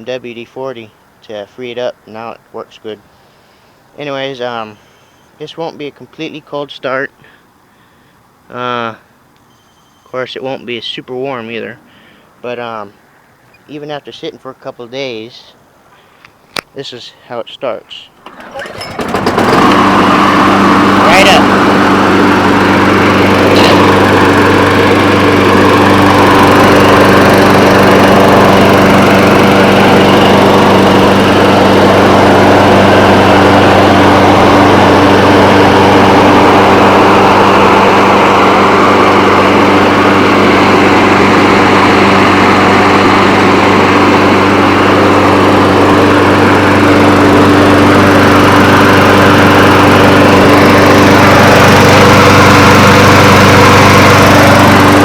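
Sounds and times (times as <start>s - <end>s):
lawn mower engine running: 18.2s - 55.0s.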